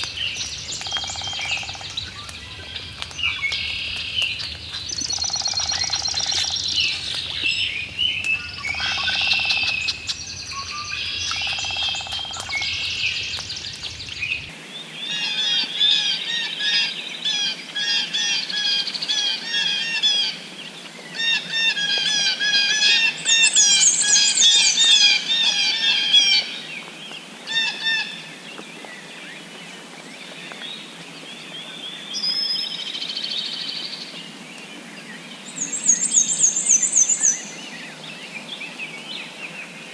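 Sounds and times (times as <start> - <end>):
birds singing and calling: 0.0 - 39.9.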